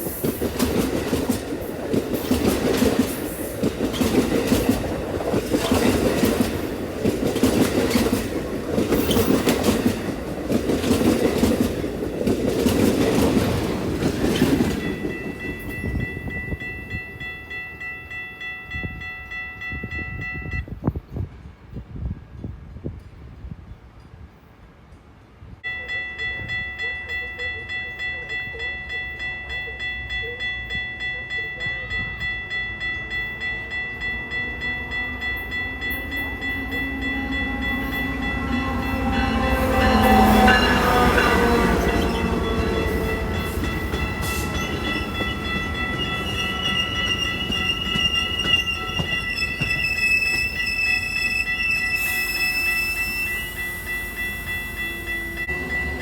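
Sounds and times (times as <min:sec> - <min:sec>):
crossing bell ringing: 0:00.0 - 0:20.8, 0:25.6 - 0:56.0
train passing: 0:00.0 - 0:56.0
high wavering squeal: 0:34.9 - 0:56.0
train horn: 0:35.3 - 0:54.2.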